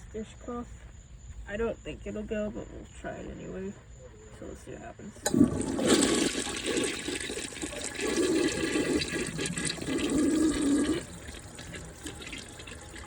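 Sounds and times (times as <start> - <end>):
toilet flushing: 5.2 - 13.0.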